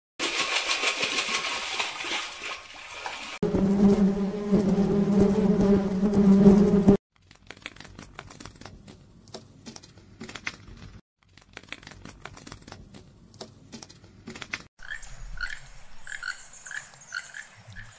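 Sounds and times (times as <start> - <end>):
wasp buzzing: 3.4 - 7.0
toucan calling: 14.8 - 17.9.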